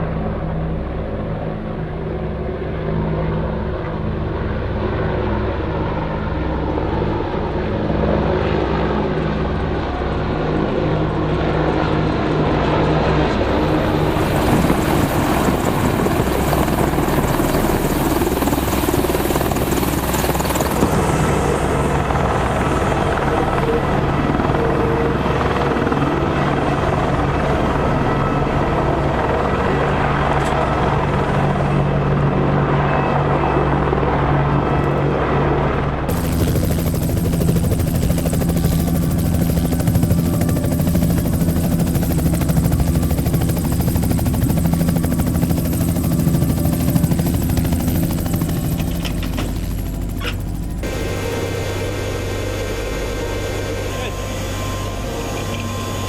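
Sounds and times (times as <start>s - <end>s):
helicopter rotor and turbine drone: 0.0s - 56.0s.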